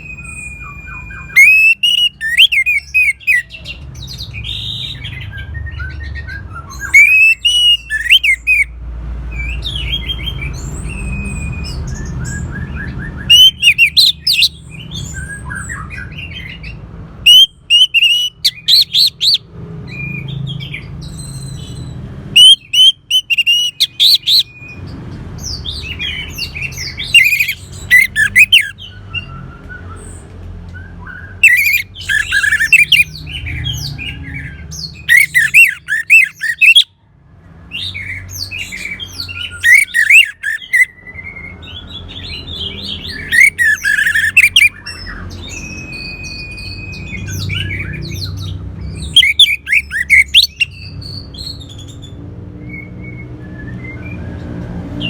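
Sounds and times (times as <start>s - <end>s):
thrush singing: 0.0s - 3.6s, 6.5s - 8.7s, 12.8s - 19.5s, 22.3s - 24.8s, 25.5s - 29.0s, 31.4s - 36.9s, 38.3s - 40.9s, 42.2s - 50.8s.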